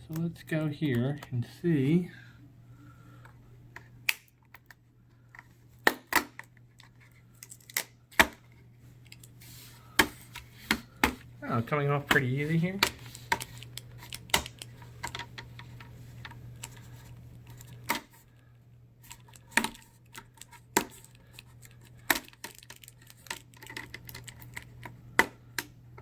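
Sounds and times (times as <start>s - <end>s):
faint steady hum: 0.0s - 26.0s
plastic clips snapping: 4.0s - 4.8s, 12.1s - 16.8s, 19.1s - 25.8s.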